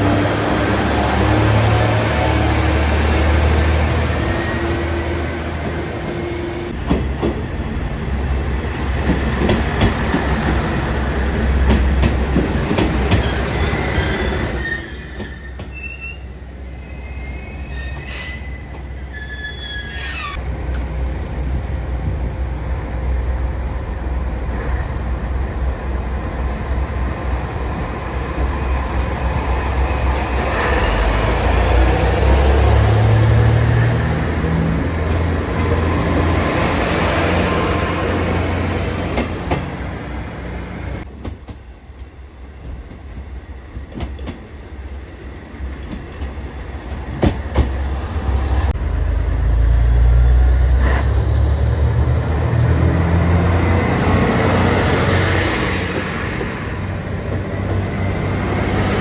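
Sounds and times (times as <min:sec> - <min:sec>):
railcar clicking over rail joints: 0:05.6 - 0:07.7, 0:08.7 - 0:15.8, 0:38.8 - 0:40.0, 0:41.0 - 0:44.5, 0:45.7 - 0:48.7
high thin squeal: 0:14.0 - 0:20.4.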